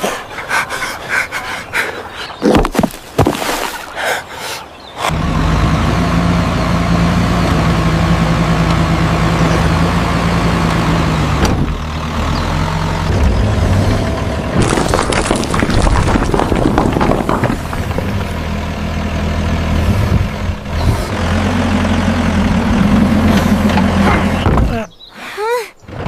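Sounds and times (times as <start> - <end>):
tractor engine running: 5.1 - 24.9.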